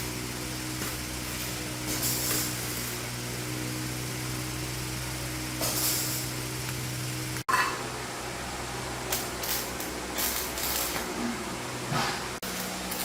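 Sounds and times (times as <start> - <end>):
small engine humming: 0.0 - 7.4
short hissy bursts: 0.9 - 2.9, 5.6 - 6.8.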